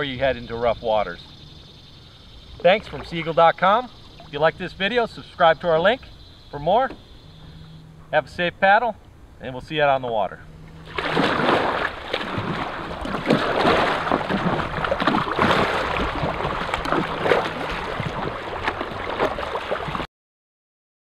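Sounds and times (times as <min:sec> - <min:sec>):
sea water splashing: 0:00.0 - 0:08.1, 0:10.2 - 0:20.1
wind noise: 0:10.8 - 0:20.0.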